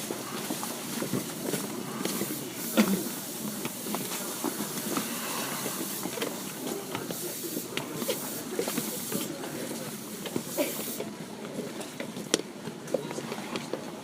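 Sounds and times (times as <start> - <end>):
train air hiss: 0.0 - 11.2.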